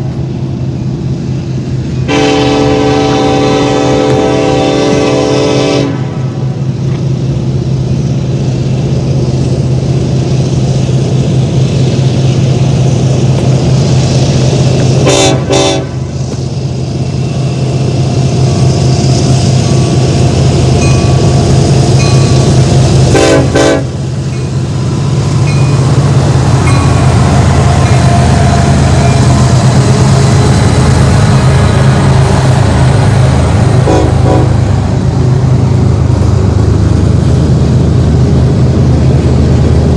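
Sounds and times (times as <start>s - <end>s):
locomotive engine drone: 0.0s - 39.9s
train horn: 2.1s - 6.4s, 15.0s - 16.2s, 23.1s - 24.0s, 33.8s - 34.7s.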